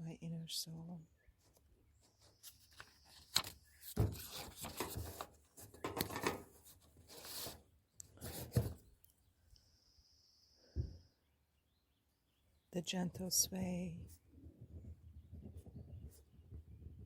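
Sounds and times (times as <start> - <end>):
rustling and rubbing: 1.4 - 9.0.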